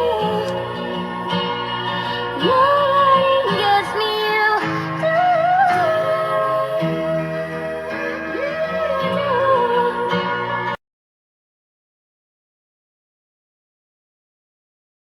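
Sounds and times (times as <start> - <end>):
guitar: 0.0 - 10.8
person singing: 0.0 - 10.8.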